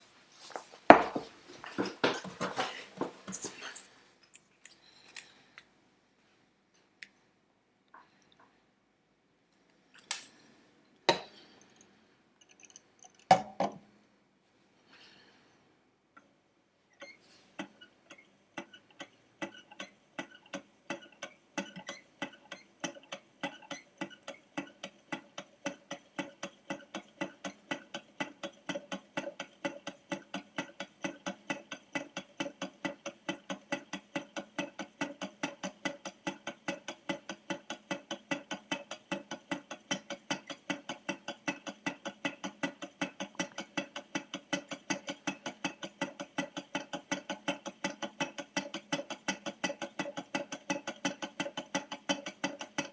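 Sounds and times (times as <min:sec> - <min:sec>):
stirling engine mechanism clicking: 0:17.0 - 0:52.9.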